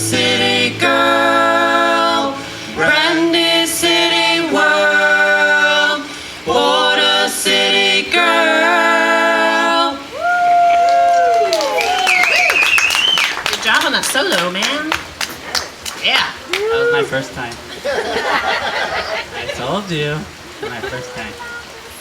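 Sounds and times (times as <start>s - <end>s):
a cappella group singing: 0.0s - 10.2s.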